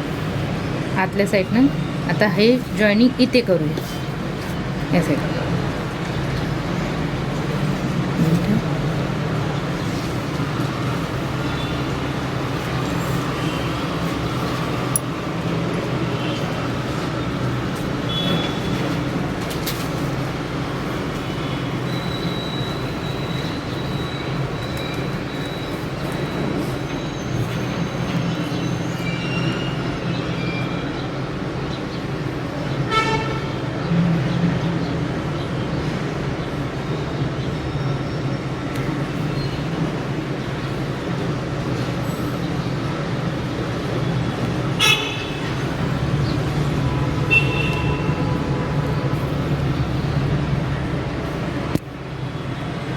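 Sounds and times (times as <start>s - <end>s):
traffic hum: 0.0s - 52.9s
car horn: 32.9s - 33.6s, 44.8s - 45.6s, 47.2s - 48.6s.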